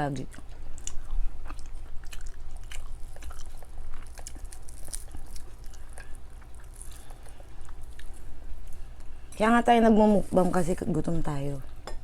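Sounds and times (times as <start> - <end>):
person chewing and biting: 0.3 - 9.1.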